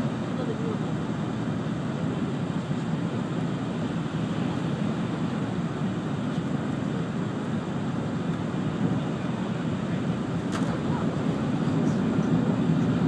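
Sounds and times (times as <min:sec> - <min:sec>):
train rumble inside cabin: 0:00.0 - 0:13.0.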